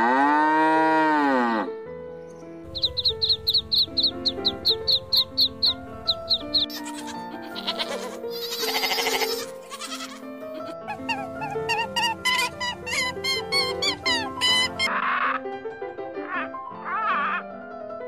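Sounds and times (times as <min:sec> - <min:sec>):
background music: 0:00.0 - 0:18.0
goat bleating: 0:06.2 - 0:14.9.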